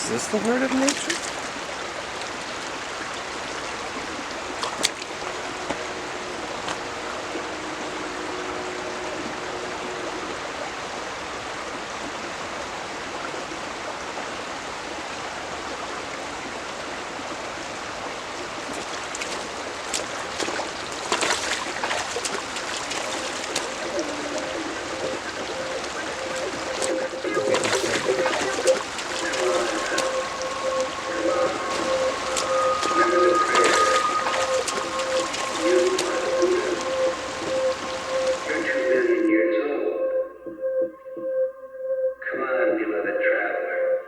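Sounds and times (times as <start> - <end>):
water splashes: 0.0 - 8.1, 18.2 - 39.3
stream flowing: 0.0 - 39.4.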